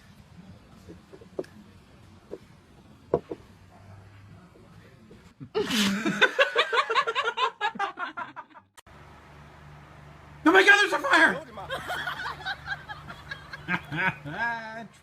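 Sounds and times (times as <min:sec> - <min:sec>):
person laughing: 0:05.4 - 0:08.4, 0:11.7 - 0:14.6.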